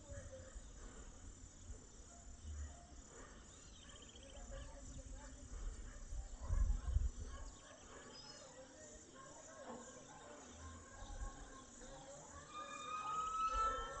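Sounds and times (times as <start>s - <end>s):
insects calling: 0.0s - 6.3s, 7.4s - 14.0s
wind rumble on microphone: 4.6s - 7.6s
bird whistle rising in pitch: 12.6s - 14.0s.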